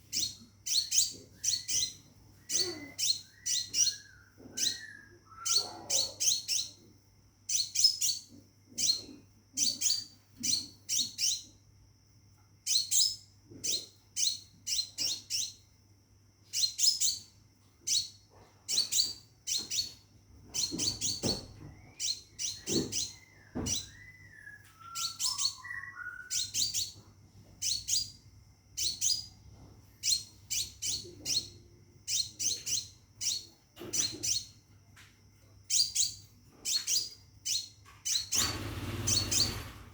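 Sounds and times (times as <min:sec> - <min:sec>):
bird high chirps: 0:00.0 - 0:06.9, 0:07.5 - 0:11.6, 0:12.6 - 0:15.6, 0:16.4 - 0:28.2, 0:28.8 - 0:29.4, 0:30.0 - 0:34.6, 0:35.7 - 0:39.7.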